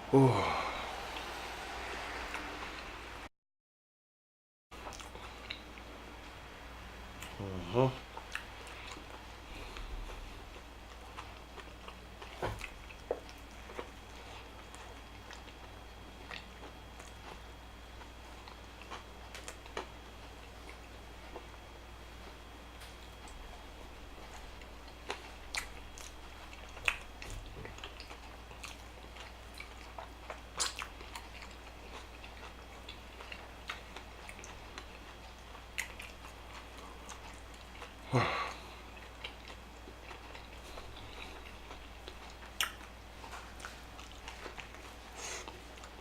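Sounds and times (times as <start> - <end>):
person chewing food: 4.8 - 5.9, 7.2 - 21.6, 22.2 - 46.0
wet mouth clicks: 30.6 - 30.9.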